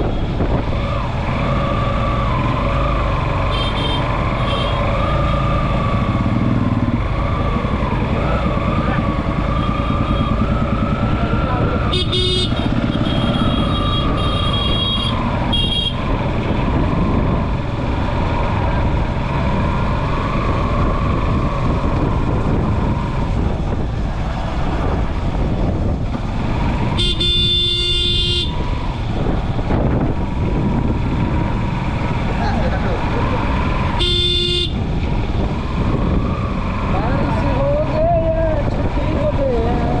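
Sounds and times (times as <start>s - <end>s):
vehicle horns honking: 3.5s - 4.8s, 11.8s - 16.1s, 26.9s - 28.6s, 33.9s - 34.8s.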